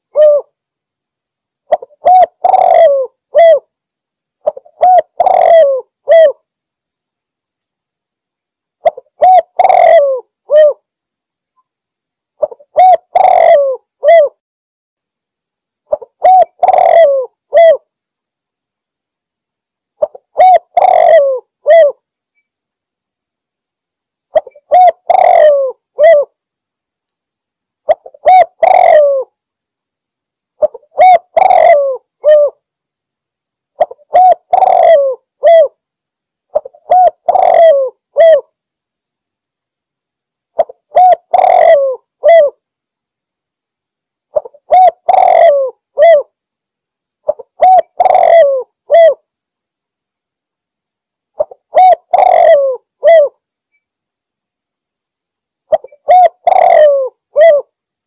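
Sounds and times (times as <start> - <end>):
dove cooing: 0.0 - 0.5, 1.7 - 3.7, 4.4 - 6.4, 8.8 - 10.8, 12.4 - 14.4, 15.9 - 17.9, 20.0 - 22.0, 24.4 - 26.4, 27.9 - 29.3, 30.6 - 32.6, 33.8 - 35.8, 36.5 - 38.5, 40.6 - 42.6, 44.3 - 46.3, 47.3 - 49.2, 51.4 - 53.4, 55.7 - 57.7.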